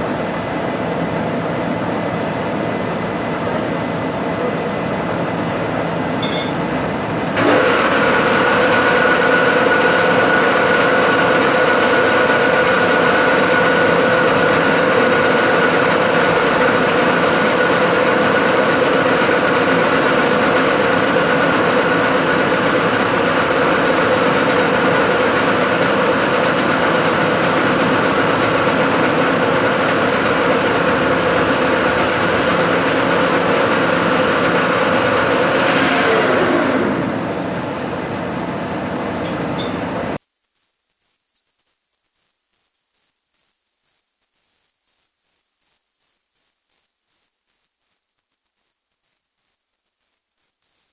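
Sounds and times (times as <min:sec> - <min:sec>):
machine tool cutting: 0:07.4 - 0:28.1.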